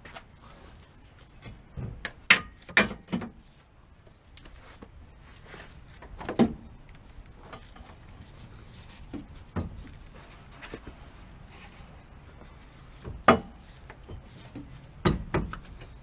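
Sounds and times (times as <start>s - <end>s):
sharp knocks and clanks: 1.4s - 3.4s, 13.0s - 15.9s.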